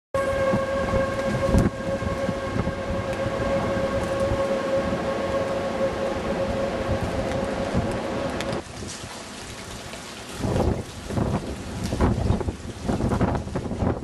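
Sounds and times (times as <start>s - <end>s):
warning siren steady tone: 0.2s - 8.6s
low rumbling noise: 0.2s - 8.9s.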